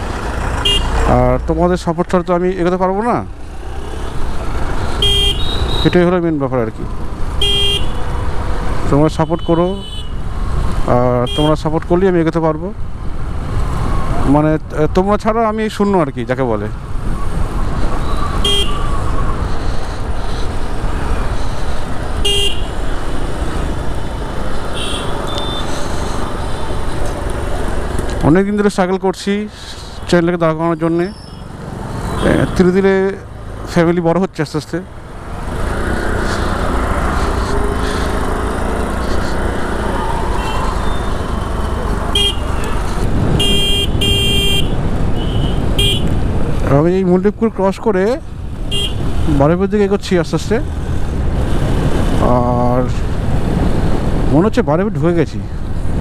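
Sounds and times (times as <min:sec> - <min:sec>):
motorcycle engine: 0:00.0 - 0:01.4, 0:34.9 - 0:46.6
vehicle horn toots: 0:00.6 - 0:01.0, 0:05.0 - 0:06.0, 0:07.4 - 0:08.0, 0:18.4 - 0:18.9, 0:22.2 - 0:22.7, 0:24.8 - 0:25.7, 0:42.1 - 0:42.8, 0:43.4 - 0:46.1, 0:48.7 - 0:49.0
wind rushing: 0:42.8 - 0:44.0.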